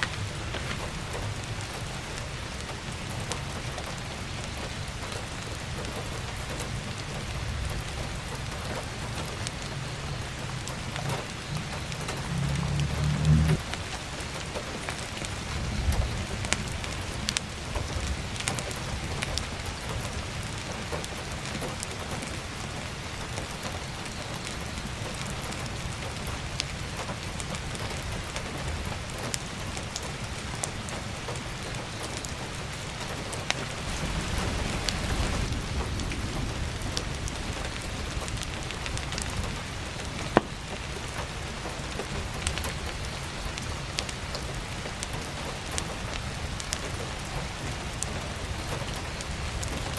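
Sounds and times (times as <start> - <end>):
firewood crackling: 0.0 - 49.9
heavy rain falling: 0.0 - 49.9
low rumble: 9.8 - 14.0.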